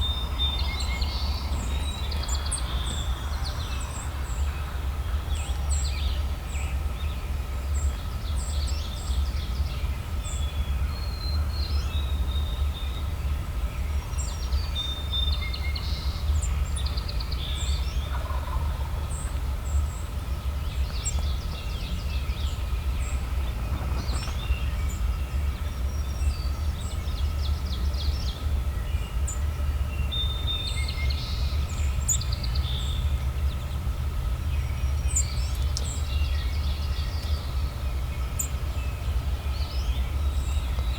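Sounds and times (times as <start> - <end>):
songbirds chirping: 0.0 - 40.9
turkey gobbling: 18.1 - 19.1.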